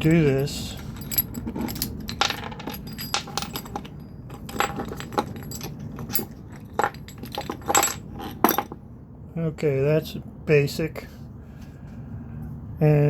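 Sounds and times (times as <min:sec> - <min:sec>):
clinks and rattles of small parts: 0:00.0 - 0:08.8.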